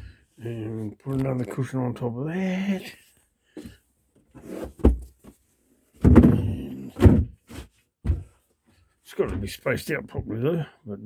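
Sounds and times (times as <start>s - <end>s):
objects knocking and thumping: 4.4s - 5.4s, 6.0s - 8.4s.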